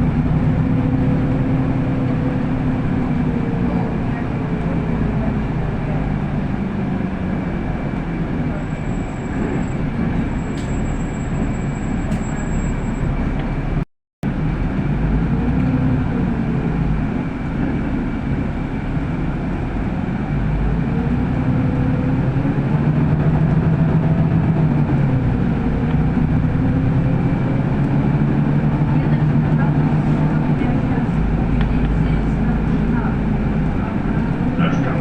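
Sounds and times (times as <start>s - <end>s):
bus engine and road noise: 0.0s - 35.0s.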